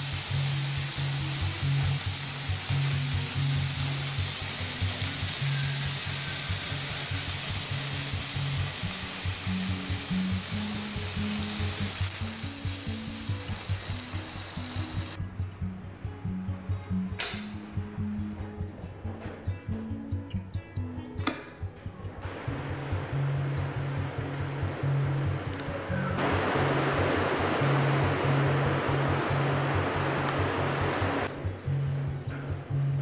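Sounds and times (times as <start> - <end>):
skewers sizzling in oil: 0.0 - 15.2.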